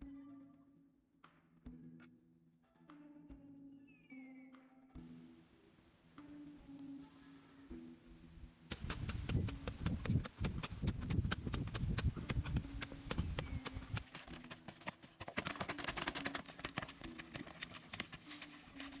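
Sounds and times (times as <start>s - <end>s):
rapid tapping and knocking: 8.7s - 18.3s.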